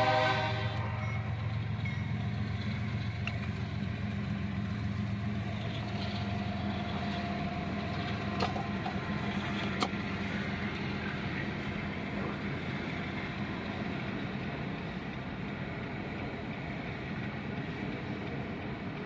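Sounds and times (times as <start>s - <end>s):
freight cars rumbling: 0.0s - 19.0s
car engine hum: 2.6s - 15.1s.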